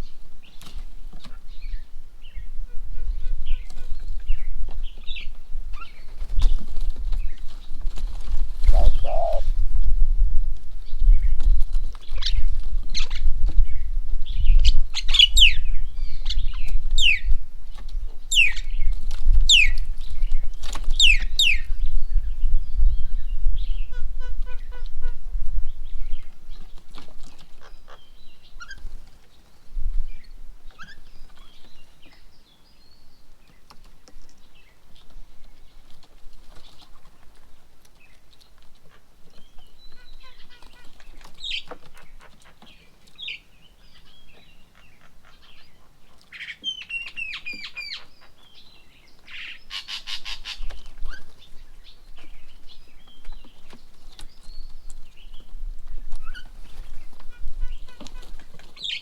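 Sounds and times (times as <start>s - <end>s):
bird rising notes: 8.6s - 9.5s
birds chirping and whistling: 8.6s - 9.5s
harsh rattling bird chatter: 8.6s - 9.5s.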